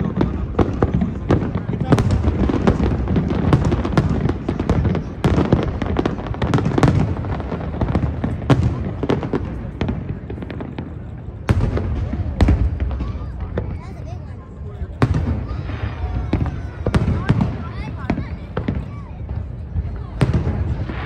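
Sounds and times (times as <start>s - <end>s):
loud firework bang: 0.0s - 13.8s, 20.1s - 21.0s
firework shell bursts and crackles: 0.0s - 21.0s.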